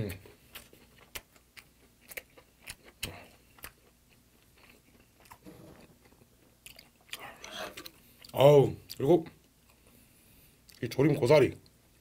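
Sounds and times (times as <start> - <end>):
close-miked chewing: 0.2 - 9.0.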